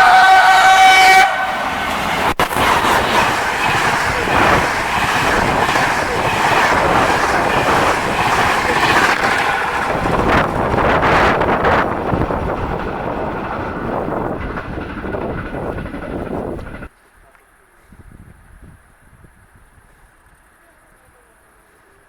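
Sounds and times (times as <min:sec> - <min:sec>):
train horn chord: 0:00.0 - 0:02.2
train rumbling on rails: 0:00.0 - 0:16.9.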